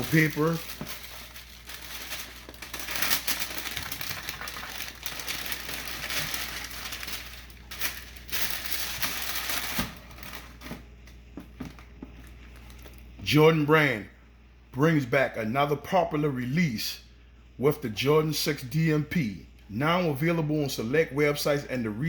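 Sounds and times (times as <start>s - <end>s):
tissue paper crinkling: 0.0s - 10.7s.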